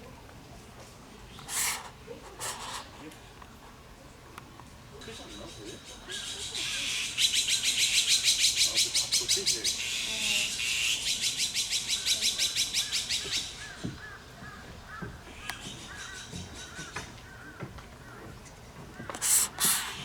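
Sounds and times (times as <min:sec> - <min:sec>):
meerkats harsh rasping: 0:19.0 - 0:20.0.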